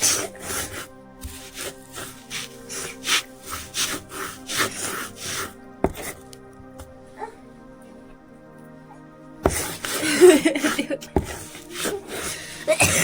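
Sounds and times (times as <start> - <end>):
rasping scraping strokes: 0.0 - 6.4, 9.4 - 13.0
background music: 0.0 - 13.0.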